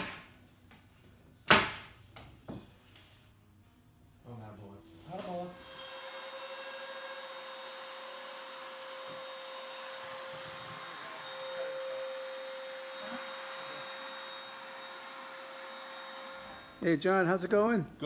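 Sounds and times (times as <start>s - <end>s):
small motor whirring: 5.2s - 16.8s.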